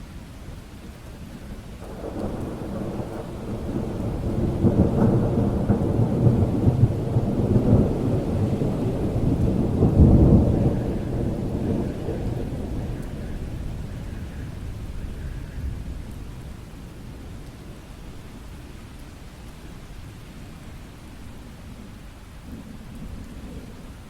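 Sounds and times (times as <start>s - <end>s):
steady rain: 0.0s - 24.0s
rolling thunder: 1.8s - 17.5s.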